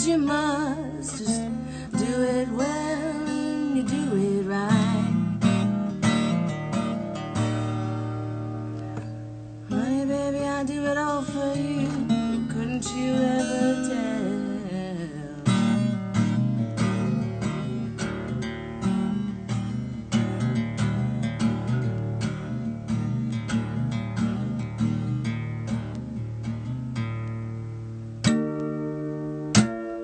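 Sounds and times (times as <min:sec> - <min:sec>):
woman singing: 0:00.0 - 0:05.4, 0:09.7 - 0:16.0
acoustic guitar strumming: 0:00.0 - 0:30.0.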